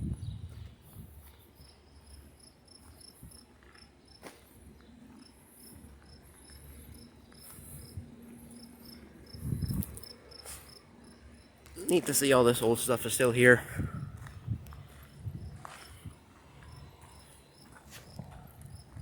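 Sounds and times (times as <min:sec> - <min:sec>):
wind rumbling on microphone: 0:00.0 - 0:01.8, 0:06.7 - 0:10.2, 0:13.6 - 0:17.2, 0:17.9 - 0:19.0
insect chirping: 0:01.2 - 0:04.2, 0:05.2 - 0:11.6.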